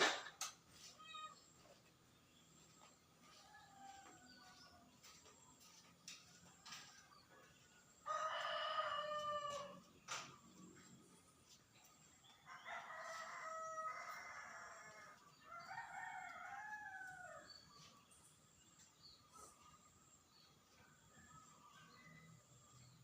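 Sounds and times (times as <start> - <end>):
rooster crowing: 3.4 - 4.7, 8.0 - 9.9, 12.5 - 17.6.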